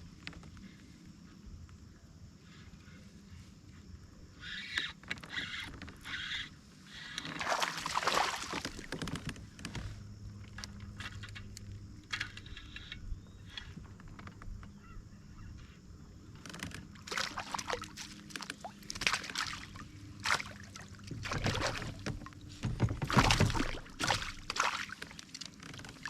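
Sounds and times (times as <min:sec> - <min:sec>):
water splashing around kayak: 0:07.2 - 0:11.2, 0:16.8 - 0:26.0.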